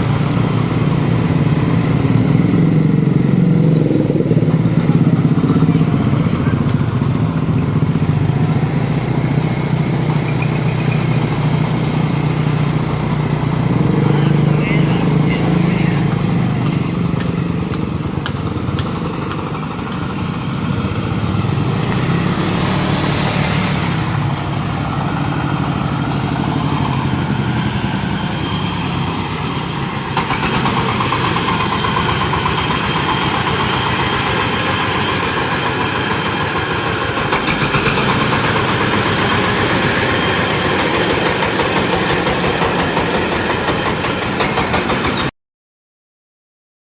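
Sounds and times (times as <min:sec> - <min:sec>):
corn sheller machine running: 0:25.9 - 0:45.3.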